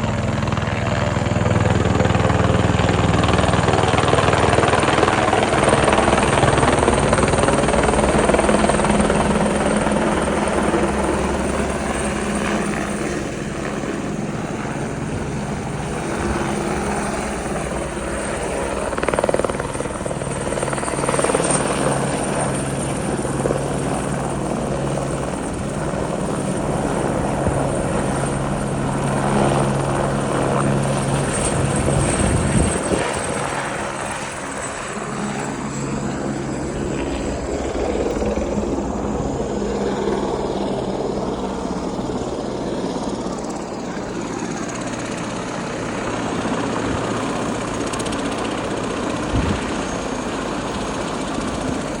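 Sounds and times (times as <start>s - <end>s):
helicopter engine and rotor hum: 0.0s - 52.0s
broad rushing noise: 29.0s - 52.0s.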